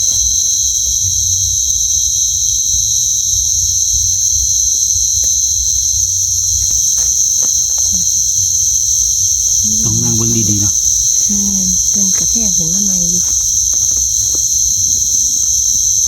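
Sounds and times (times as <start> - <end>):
night insects chorus: 0.0 - 16.0
faint clicks and rustles: 5.2 - 16.0.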